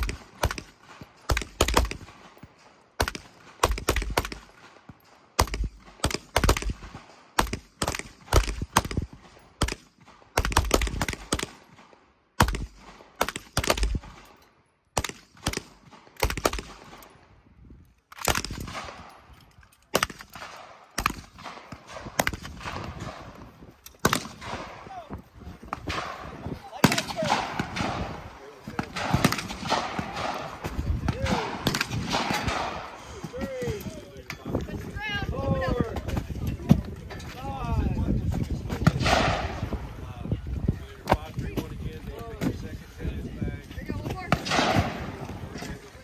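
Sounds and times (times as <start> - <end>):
rapid gunshots: 0.0 - 2.4, 3.0 - 4.8, 5.4 - 14.2, 15.0 - 17.0, 25.7 - 33.0, 44.3 - 45.3.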